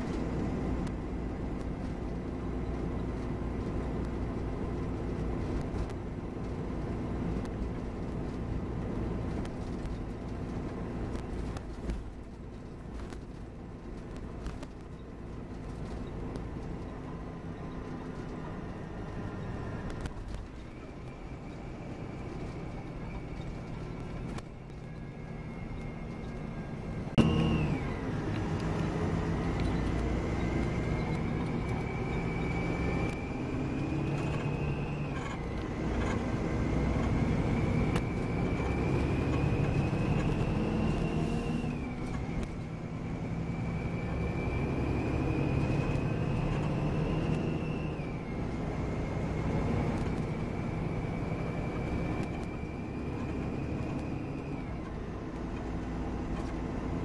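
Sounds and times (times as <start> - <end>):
coach engine drone: 0.0 - 57.0
high gear whine: 0.0 - 57.0.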